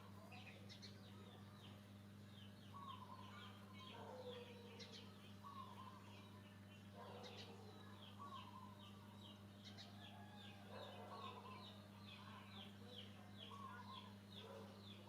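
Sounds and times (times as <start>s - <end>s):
faint bird chirps: 0.0s - 15.0s
low electrical hum: 0.0s - 15.0s
low warbling bird calls: 0.0s - 15.0s.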